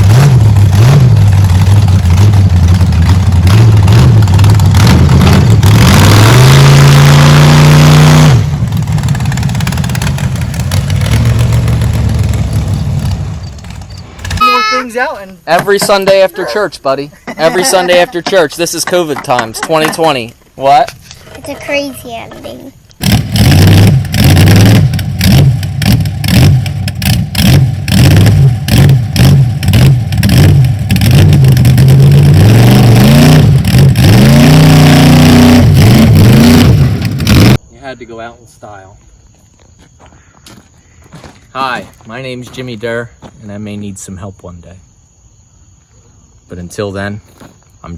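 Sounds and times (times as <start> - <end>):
large truck engine revving: 0.0 - 14.4, 23.0 - 37.6.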